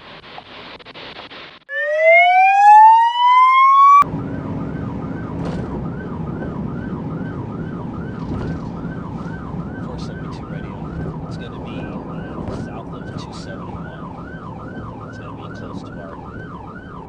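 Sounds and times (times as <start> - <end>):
police siren wailing: 1.7 - 17.0
police siren yelping: 1.7 - 17.0
low vehicle hum: 4.0 - 17.0.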